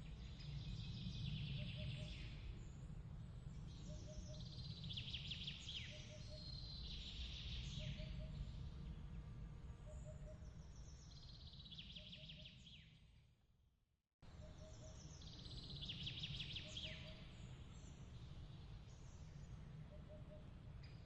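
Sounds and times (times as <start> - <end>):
low steady rumble: 0.0 - 11.5.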